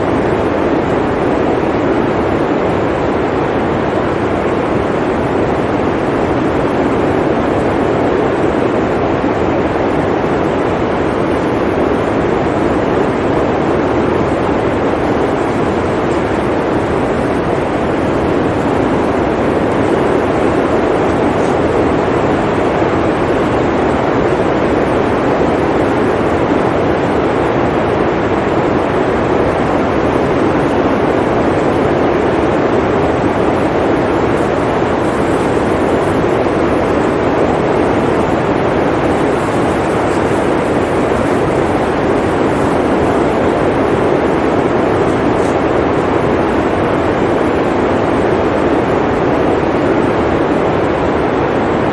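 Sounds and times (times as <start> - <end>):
blizzard wind blowing: 0.0 - 51.9.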